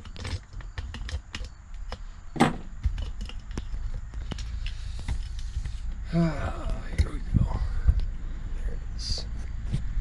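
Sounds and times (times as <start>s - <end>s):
metal parts clicking and knocking: 0.0s - 5.8s.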